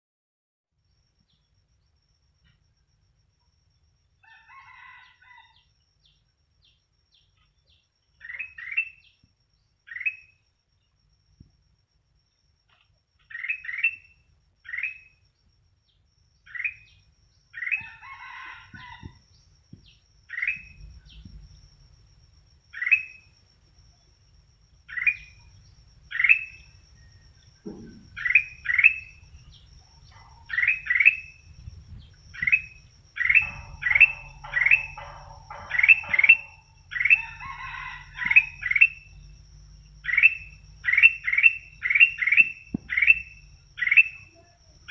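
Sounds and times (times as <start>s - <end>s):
bulbul calling: 17.6s - 21.6s, 22.8s - 23.3s, 24.8s - 44.9s
low steady hum: 19.1s - 44.9s.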